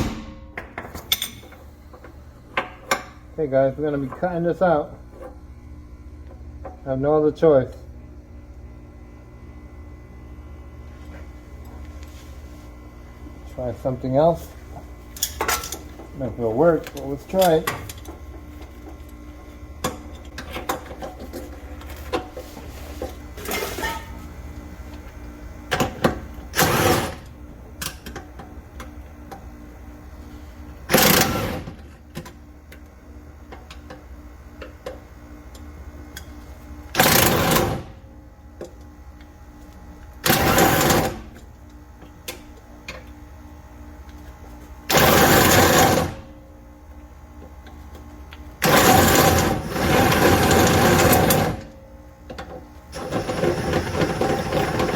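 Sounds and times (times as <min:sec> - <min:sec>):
power tool bursts: 0:26.5 - 0:27.2, 0:30.9 - 0:31.8, 0:44.9 - 0:46.3.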